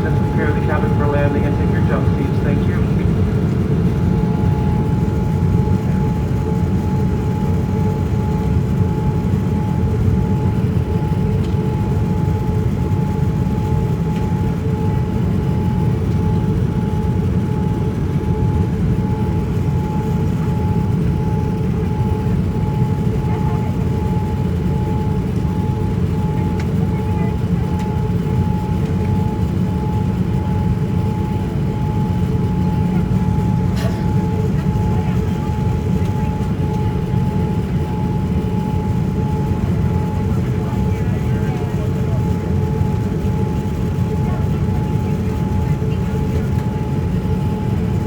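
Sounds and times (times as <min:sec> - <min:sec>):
airplane cabin rush: 0:00.0 - 0:06.6, 0:32.4 - 0:37.8.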